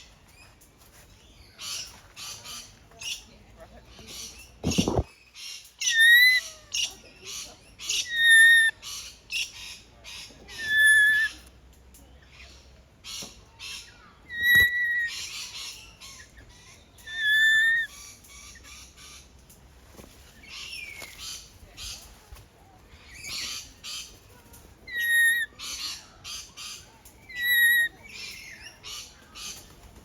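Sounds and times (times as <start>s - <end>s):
birds chirping: 0.0s - 19.6s, 20.2s - 30.0s
bird whistled call: 14.3s - 15.2s, 17.0s - 17.9s, 27.3s - 27.9s.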